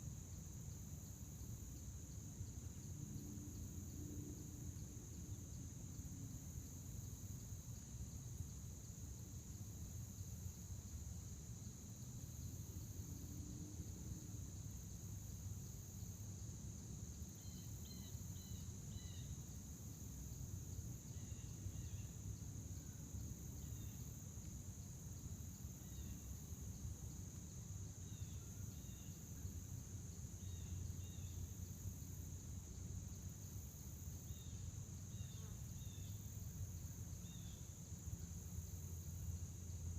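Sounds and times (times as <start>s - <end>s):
crickets trilling: 0.0s - 39.9s
faint insect tone: 0.0s - 39.9s.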